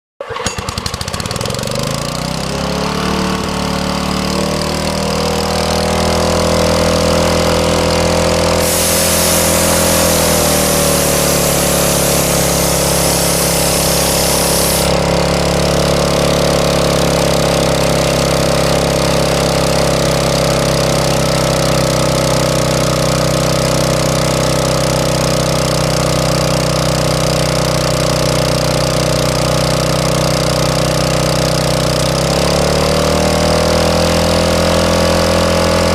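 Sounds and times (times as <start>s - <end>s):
air compressor running: 0.2s - 35.9s
loud hiss of air: 8.6s - 15.3s.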